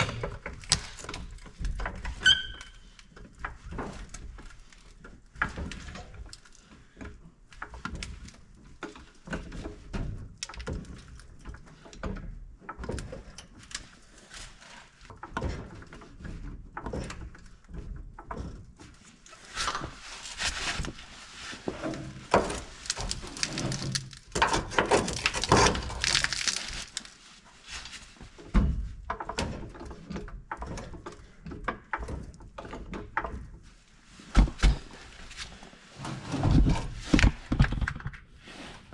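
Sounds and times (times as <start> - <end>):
scraping and rattling: 18.2 - 28.6.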